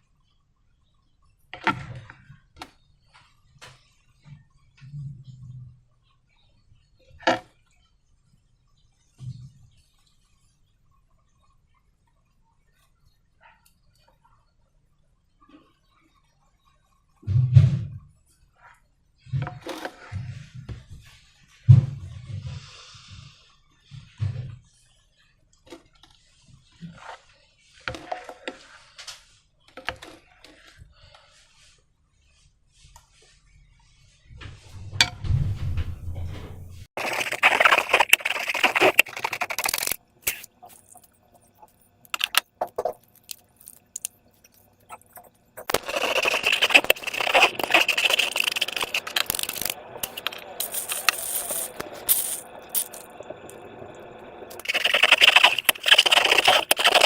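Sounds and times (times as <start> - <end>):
slime squelching and clicking: 37.0 - 53.1, 54.5 - 57.0.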